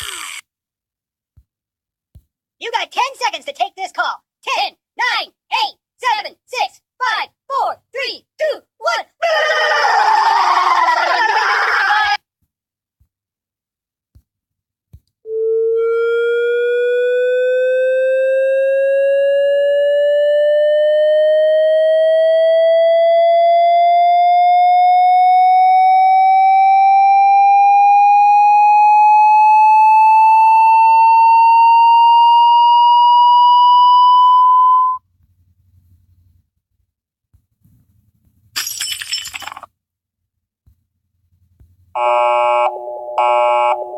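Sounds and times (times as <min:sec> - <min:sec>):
electronic tone rising in pitch: 0:15.3 - 0:35.0.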